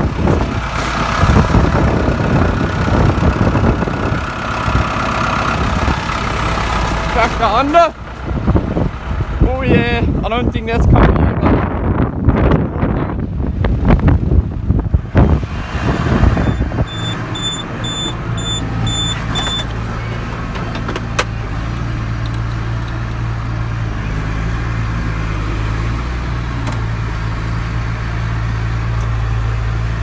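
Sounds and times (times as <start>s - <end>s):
wind buffeting microphone: 0.0s - 6.9s, 7.5s - 22.0s
tractor engine running: 0.0s - 11.0s, 11.7s - 30.0s
short high beeps: 16.4s - 19.6s.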